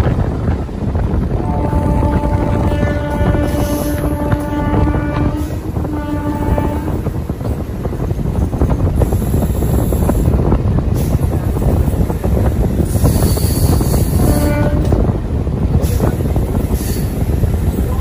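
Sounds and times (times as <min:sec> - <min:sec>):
train rumbling and rattling: 0:00.0 - 0:18.0
horn-like tone: 0:01.4 - 0:07.1.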